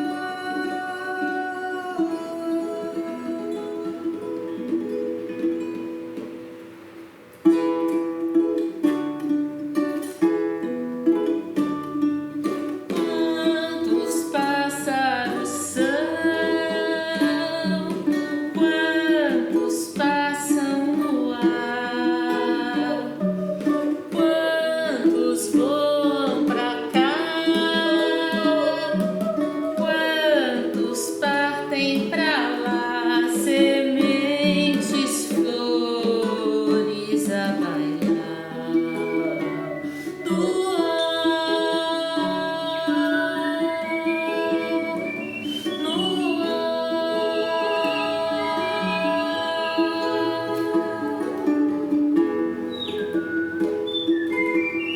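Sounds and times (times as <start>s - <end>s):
women singing in harmony: 0.0s - 4.6s, 12.8s - 53.2s
guitar picking: 0.0s - 54.9s.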